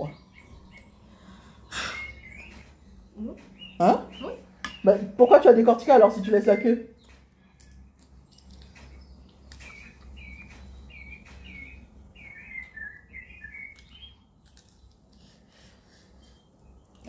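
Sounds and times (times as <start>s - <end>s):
bird chirping: 0.0s - 17.0s.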